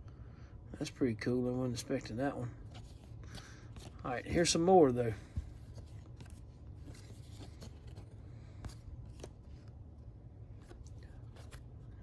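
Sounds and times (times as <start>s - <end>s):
low steady hum: 0.0s - 12.0s
trading cards flipping: 2.6s - 12.0s.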